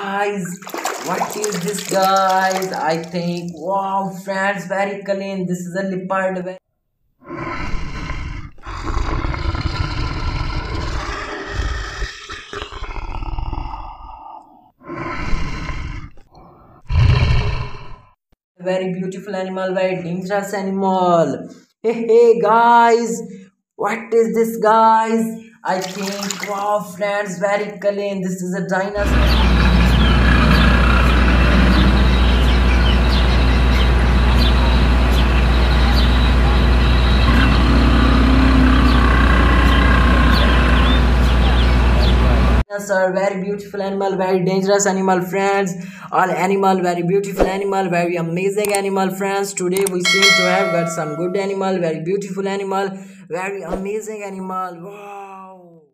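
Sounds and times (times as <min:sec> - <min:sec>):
leopard roaring and growling: 0:07.2 - 0:18.1, 0:29.0 - 0:32.5, 0:36.0 - 0:42.1
small birds chirping: 0:29.0 - 0:42.4
loud low machinery rumble: 0:29.0 - 0:42.6.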